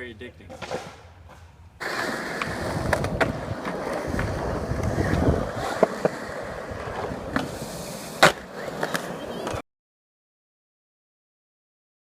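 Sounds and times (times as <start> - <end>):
skateboard wheels rolling on pavement: 0.5 - 9.6.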